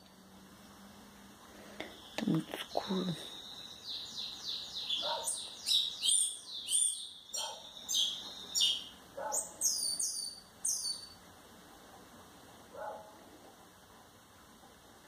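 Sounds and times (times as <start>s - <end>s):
fainter lower bird calls: 1.6s - 11.3s
small bird chirping: 1.7s - 11.2s.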